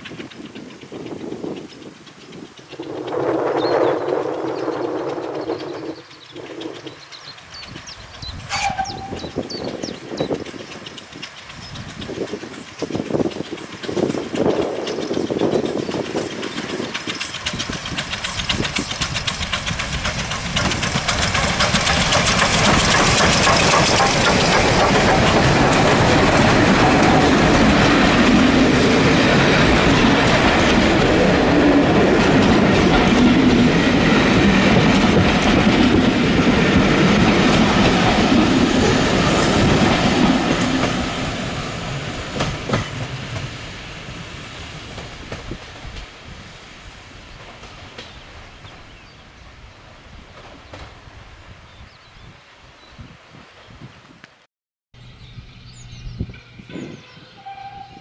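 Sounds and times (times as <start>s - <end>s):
train wheels clicking over rail joints: 0.0s - 48.9s.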